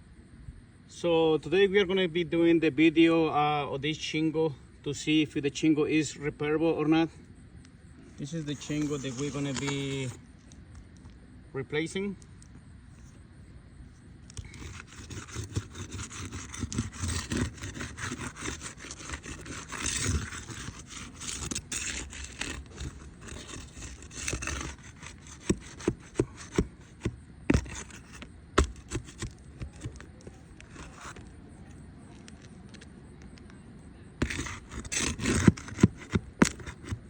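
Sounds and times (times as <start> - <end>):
tool scraping a shingle: 8.2 - 10.2, 14.3 - 31.3, 34.2 - 37.0.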